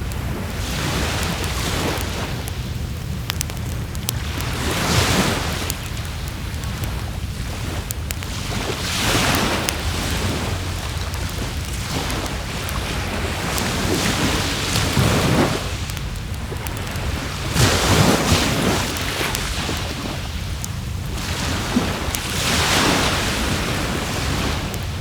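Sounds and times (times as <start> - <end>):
waves washing onto shore: 0.0 - 25.0
wind noise: 0.0 - 25.0
wood fire crackling: 0.0 - 25.0.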